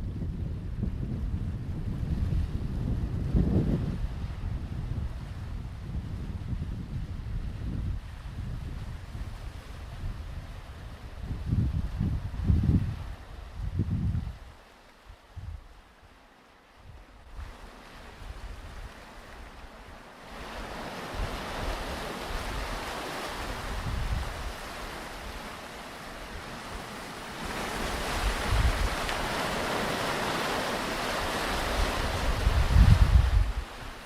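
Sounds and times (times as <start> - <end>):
wind buffeting microphone: 0.0 - 14.5, 15.2 - 15.8, 20.4 - 25.4, 27.5 - 34.0
waves breaking on beach: 1.7 - 34.0.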